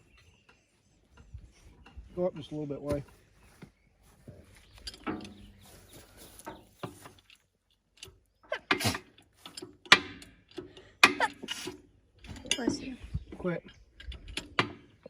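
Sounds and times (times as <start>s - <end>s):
metallic clicks and clanks: 4.8s - 5.6s, 6.4s - 15.0s.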